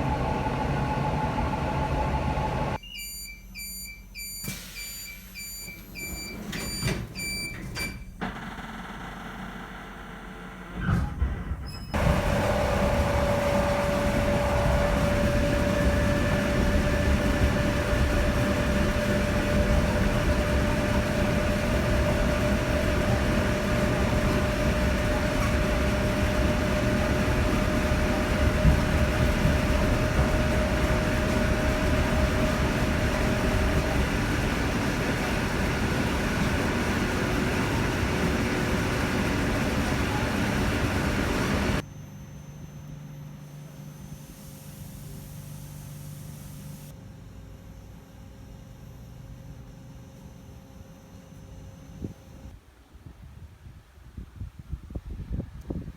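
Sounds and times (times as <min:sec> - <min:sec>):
electric train rumble and rattle: 0:00.0 - 0:02.8, 0:05.9 - 0:41.9
thin steady whine: 0:39.8 - 0:52.5.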